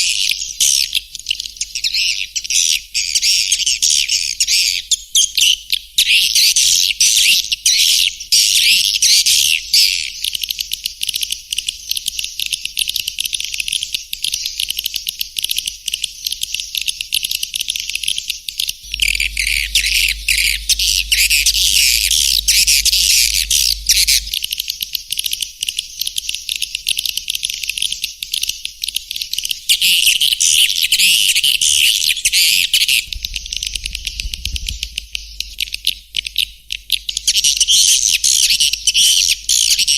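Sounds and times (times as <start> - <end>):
swiftlets twittering chirps: 18.9 - 24.4
faint low hum: 18.9 - 24.5, 33.0 - 36.1.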